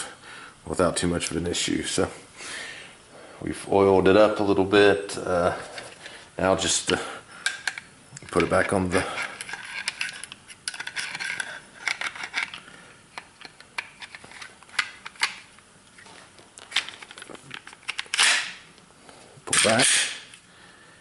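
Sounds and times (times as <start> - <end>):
small clicks and scrapes of parts: 5.6 - 6.2, 7.4 - 18.5.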